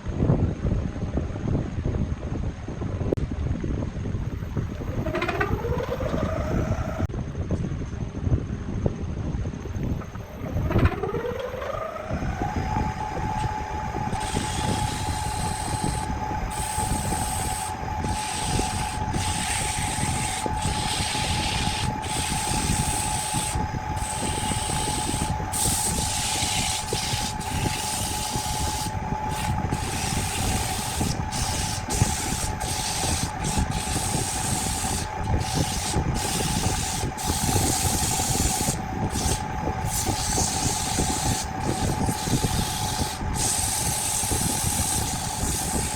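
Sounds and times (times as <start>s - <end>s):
power tool motor whining: 4.5s - 7.1s, 9.8s - 45.9s
wood abrading with hissing strokes: 13.4s - 45.9s.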